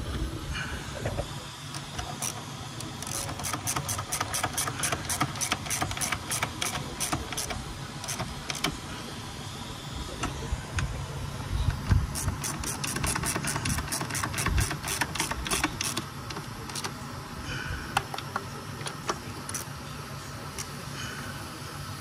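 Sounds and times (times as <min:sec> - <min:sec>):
ratchet wrench clicking: 0:01.7 - 0:08.8, 0:11.7 - 0:17.0, 0:18.9 - 0:19.7.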